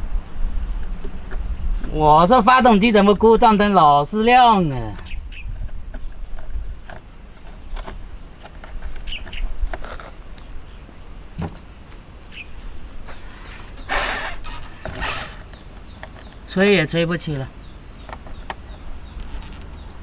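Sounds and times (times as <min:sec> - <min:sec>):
insects chirring: 0:00.0 - 0:20.0
breath blown hissing puff: 0:13.1 - 0:15.6.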